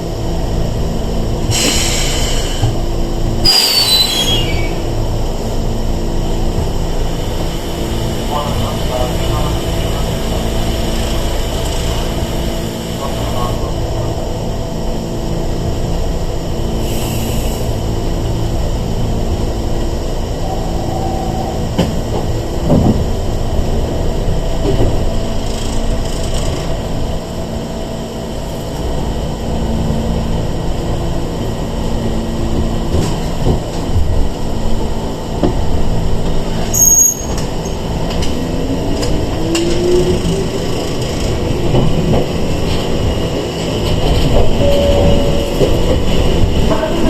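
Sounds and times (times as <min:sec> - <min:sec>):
train running rumble: 0:00.0 - 0:47.0.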